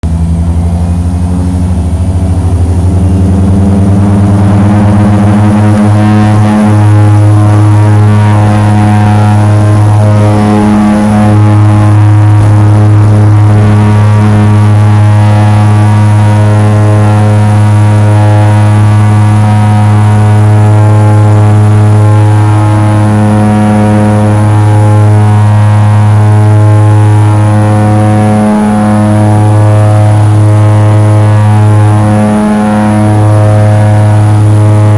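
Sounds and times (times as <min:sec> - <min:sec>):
propeller engine droning: 0:00.0 - 0:34.9.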